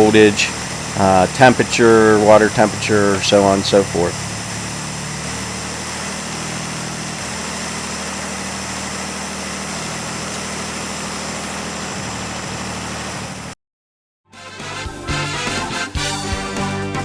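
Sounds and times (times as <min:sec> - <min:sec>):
car engine idling: 0:00.0 - 0:13.6
music: 0:14.3 - 0:17.0.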